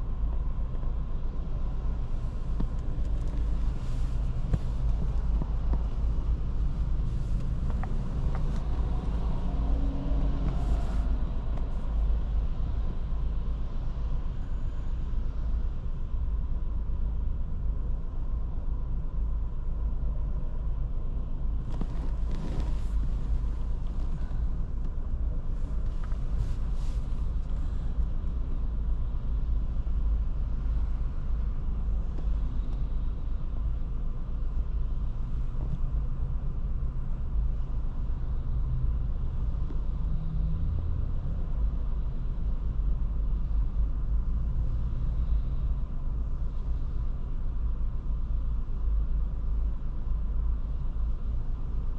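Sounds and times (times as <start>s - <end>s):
car engine and tyre rumble: 0.0s - 51.9s
hissy road noise: 1.6s - 13.5s, 21.6s - 38.6s.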